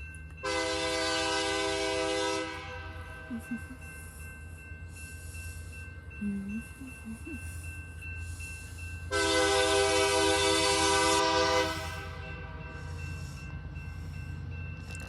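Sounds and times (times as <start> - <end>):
locomotive air horn blast: 0.4 - 2.9, 9.1 - 12.2.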